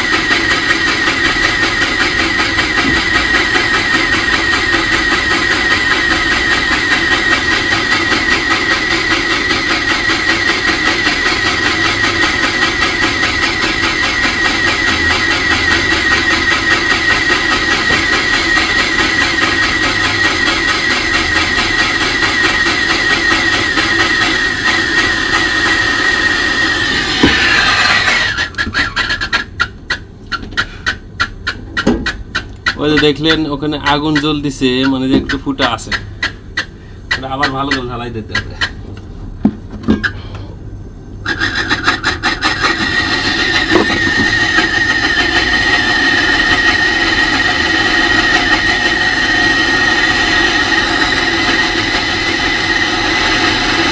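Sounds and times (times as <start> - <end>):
torch roaring and whistling: 21.1 - 28.7, 42.4 - 53.9.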